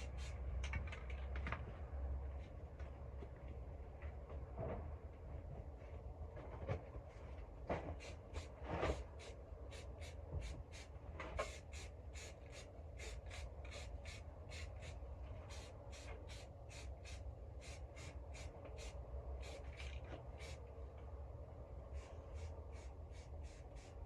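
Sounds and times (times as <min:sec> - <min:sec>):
spray paint can hissing: 0:00.0 - 0:00.4, 0:08.0 - 0:20.6, 0:22.0 - 0:24.0
low steady rumble: 0:00.0 - 0:24.0.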